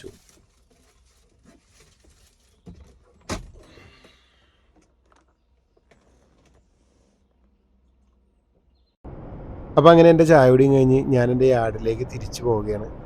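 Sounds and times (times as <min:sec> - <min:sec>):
brief rustle: 0:00.0 - 0:08.2.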